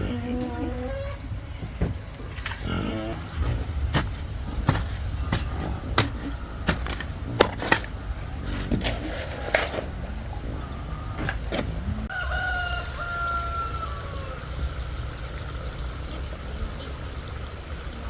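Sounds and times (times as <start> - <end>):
steady low hum: 0.0 - 12.1
sharp knocks: 3.2 - 9.1
rooster crowing: 11.8 - 14.8.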